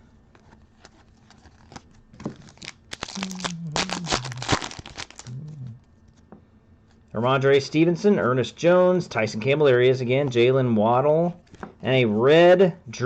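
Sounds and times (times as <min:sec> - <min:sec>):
foil wrapper tearing and crinkling: 0:01.1 - 0:05.4.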